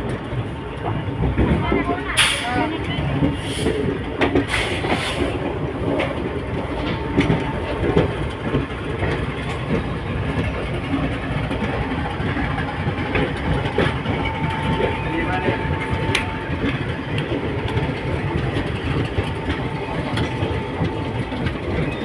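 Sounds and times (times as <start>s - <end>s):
train rumbling: 0.0s - 22.0s
wheels clacking over rail joints: 0.0s - 22.0s.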